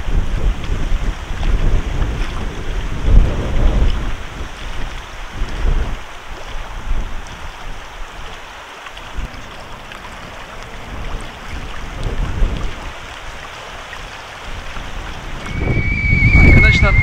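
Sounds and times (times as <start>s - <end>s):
wind buffeting microphone: 0.0s - 8.4s, 9.0s - 17.0s.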